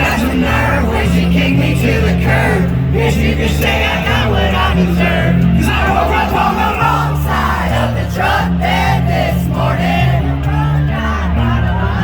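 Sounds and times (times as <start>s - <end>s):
crowd noise: 0.0s - 12.0s
live country-rock band: 0.0s - 12.0s.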